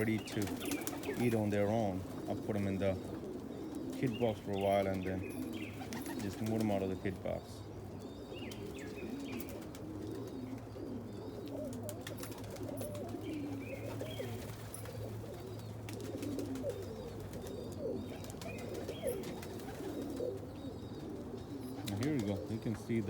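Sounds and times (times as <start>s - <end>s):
pigeons cooing: 0.0s - 23.0s.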